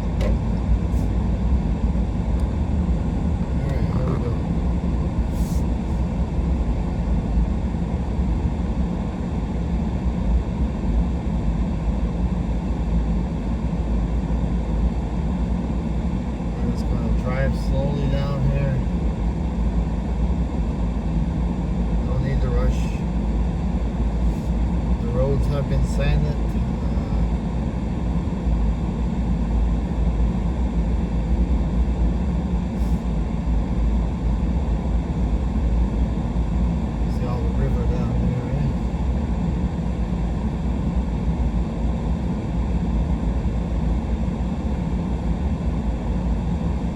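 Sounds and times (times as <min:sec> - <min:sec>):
truck engine and tyre rumble: 0:00.0 - 0:12.1.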